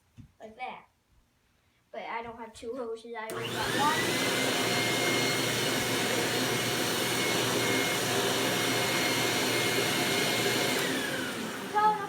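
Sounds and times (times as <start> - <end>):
vacuum cleaner motor whining: 3.3 - 12.0.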